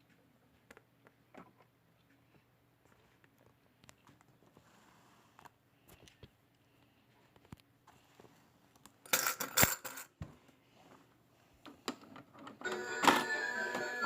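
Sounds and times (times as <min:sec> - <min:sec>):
coins clattering: 0:09.1 - 0:10.1.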